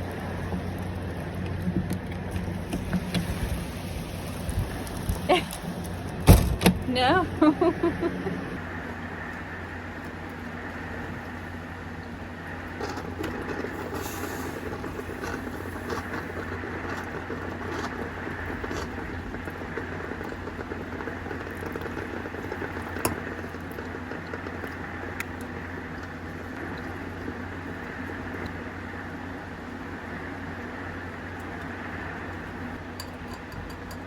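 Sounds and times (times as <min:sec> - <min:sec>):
raindrops ticking: 0:12.7 - 0:28.7
steady heavy rain: 0:12.8 - 0:29.2.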